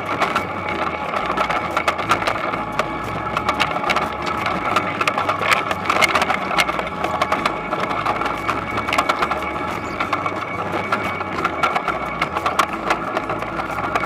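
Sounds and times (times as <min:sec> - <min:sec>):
dense rattle and clatter: 0:00.0 - 0:14.0
machine engine hum: 0:00.0 - 0:14.0.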